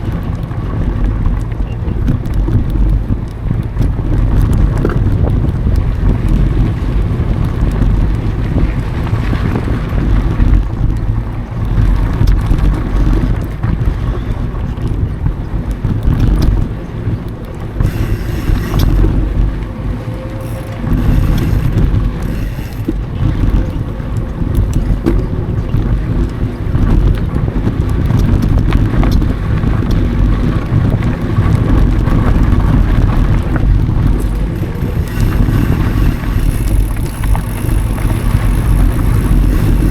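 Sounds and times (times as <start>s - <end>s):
tyre and trail rumble: 0.0s - 39.9s
wind buffeting microphone: 0.0s - 39.9s.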